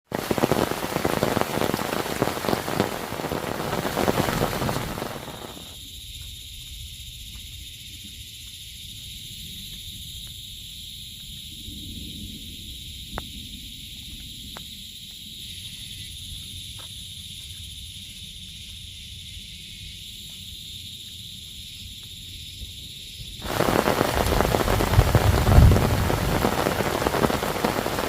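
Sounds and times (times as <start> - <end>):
heavy rain pattering: 0.0 - 5.8, 23.4 - 28.0
high insect drone: 0.1 - 28.0.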